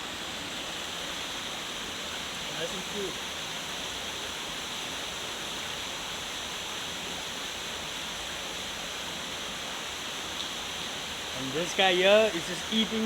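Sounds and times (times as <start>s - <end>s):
river water rushing over rocks: 0.0s - 13.0s.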